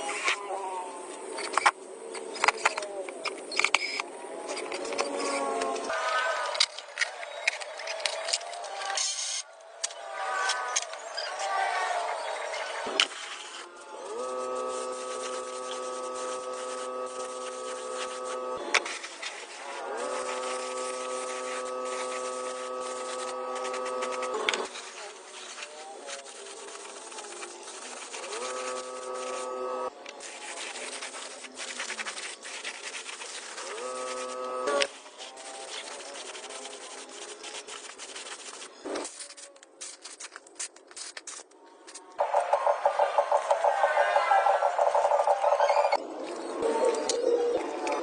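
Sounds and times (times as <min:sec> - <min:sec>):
scratchy sanding: 0:13.1 - 0:40.4
power tool motor running: 0:14.0 - 0:18.6, 0:19.7 - 0:24.7, 0:28.1 - 0:29.9.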